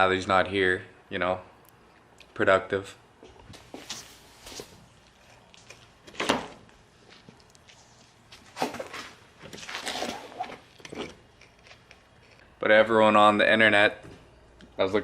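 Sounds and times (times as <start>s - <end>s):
tools clattering: 8.7s - 12.4s.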